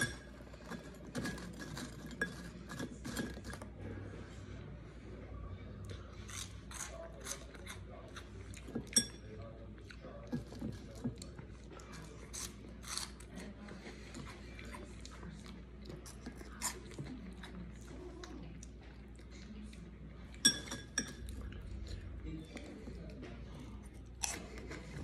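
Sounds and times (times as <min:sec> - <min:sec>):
crunchy snack chewing: 0:11.8 - 0:14.2.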